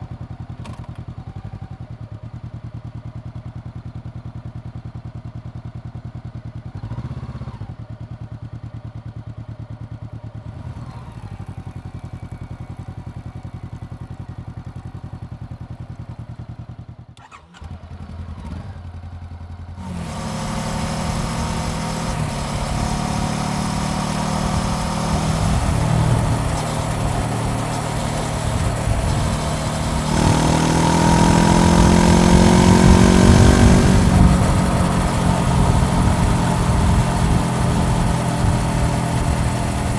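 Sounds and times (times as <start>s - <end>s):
motorcycle engine revving: 17.2s - 39.9s
wind rush: 19.8s - 39.9s.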